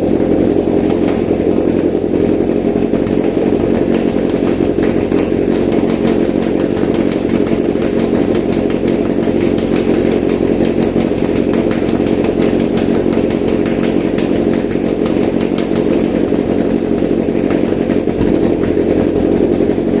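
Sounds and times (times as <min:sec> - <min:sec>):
petrol engine running steadily: 0:00.0 - 0:20.0.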